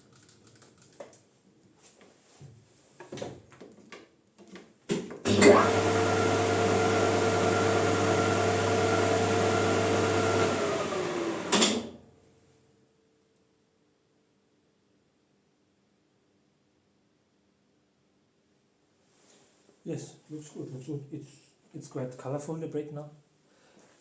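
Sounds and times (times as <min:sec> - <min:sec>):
lathe motor humming and whining: 0:05.3 - 0:12.0.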